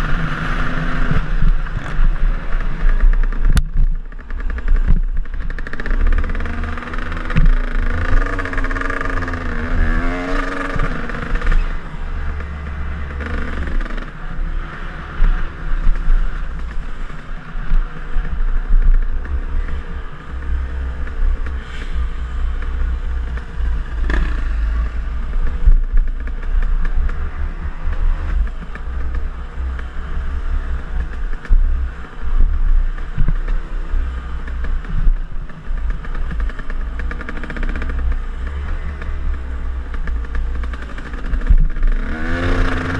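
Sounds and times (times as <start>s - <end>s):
dirt bike engine revving: 4.1s - 15.6s, 23.6s - 25.6s, 40.0s - 42.9s.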